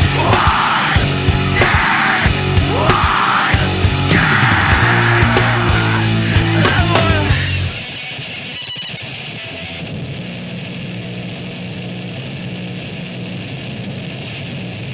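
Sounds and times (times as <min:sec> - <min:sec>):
heavy band music: 0:00.0 - 0:08.9
guitar amplifier hum and feedback: 0:00.0 - 0:14.9.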